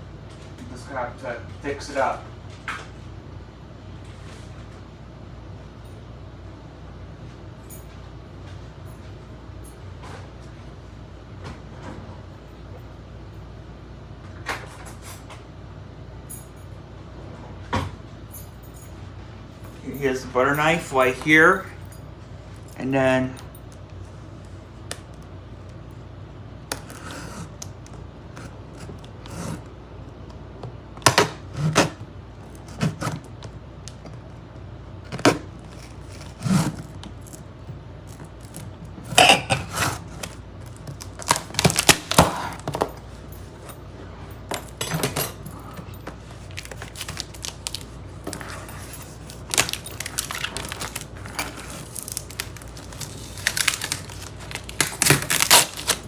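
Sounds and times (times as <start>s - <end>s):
cardboard box being cut open: 36.1s - 36.9s
packing being handled: 45.6s - 56.0s.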